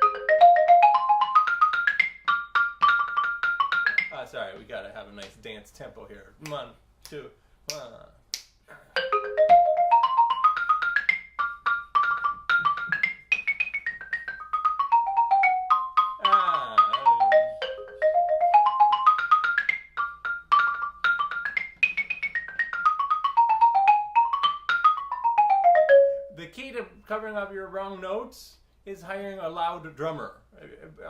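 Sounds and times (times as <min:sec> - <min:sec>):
xylophone scales and arpeggios: 0:00.0 - 0:04.2, 0:09.0 - 0:26.4.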